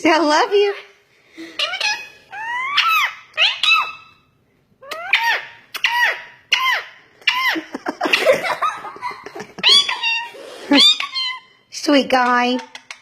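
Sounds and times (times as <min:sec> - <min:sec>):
parrot squeaky calls: 0:00.5 - 0:08.3, 0:09.6 - 0:11.7.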